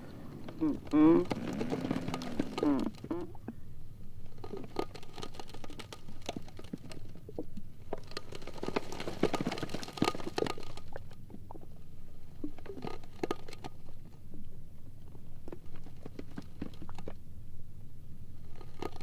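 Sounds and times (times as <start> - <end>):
ice floes grinding and creaking: 0.0 - 3.5, 4.3 - 11.1
faint low rumble: 0.0 - 19.0.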